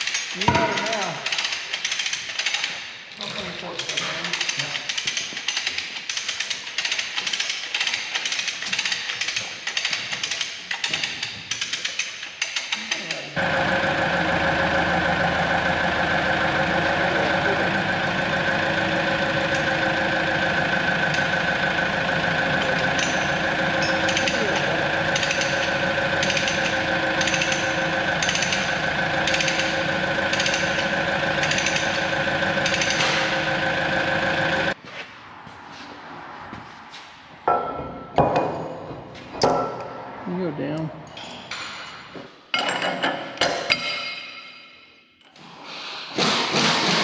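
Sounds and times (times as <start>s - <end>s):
machine running loudly: 13.4s - 34.8s.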